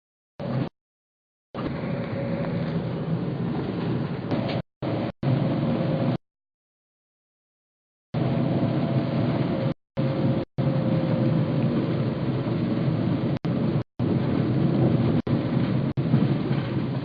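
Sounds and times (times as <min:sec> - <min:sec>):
car rumbling on the move: 0:01.6 - 0:06.2, 0:08.2 - 0:17.0.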